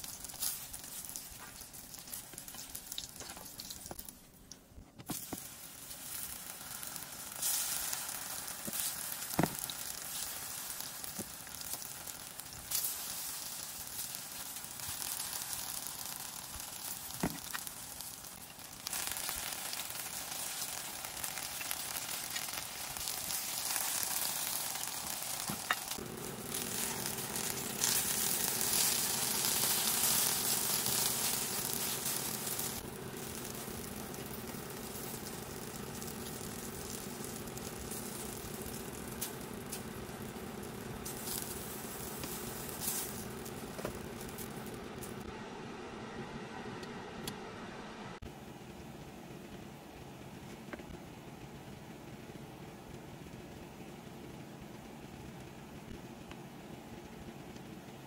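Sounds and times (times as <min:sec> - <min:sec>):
eggplant sizzling in oil: 0:00.0 - 0:45.3.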